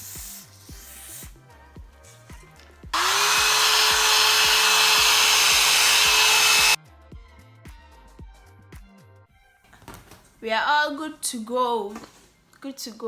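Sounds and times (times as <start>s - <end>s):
hair dryer blowing: 3.0s - 6.8s.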